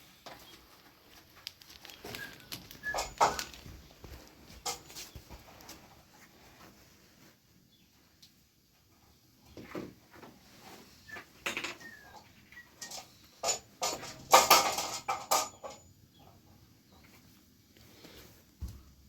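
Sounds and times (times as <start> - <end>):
sharp knocks and clattering: 2.8 - 5.8, 11.4 - 12.2, 12.8 - 15.9.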